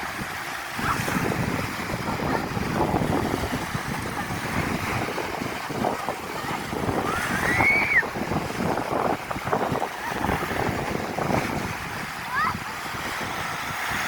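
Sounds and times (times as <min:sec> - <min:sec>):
waves washing onto shore: 0:00.0 - 0:14.0
wind buffeting microphone: 0:00.0 - 0:14.0.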